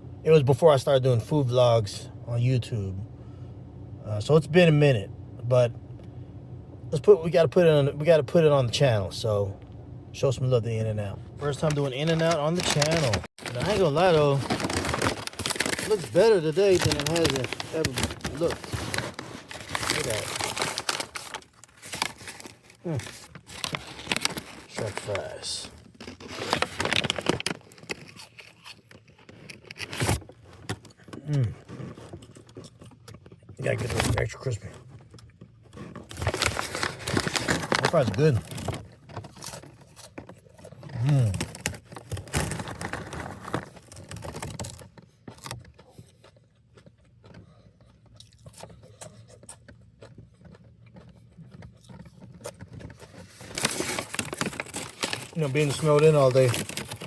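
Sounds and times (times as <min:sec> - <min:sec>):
paper wrappers crinkling: 0:11.4 - 0:30.6, 0:35.8 - 0:45.6, 0:50.5 - 0:57.0
crunching bites of fries: 0:11.4 - 0:57.0.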